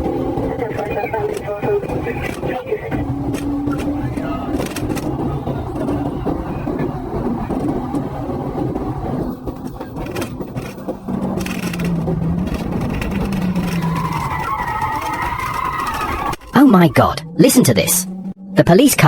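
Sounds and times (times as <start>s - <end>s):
blown tyre scraping and rattling: 0.0s - 19.0s
heavy road rumble: 0.0s - 19.0s
steady low drone: 16.2s - 18.7s.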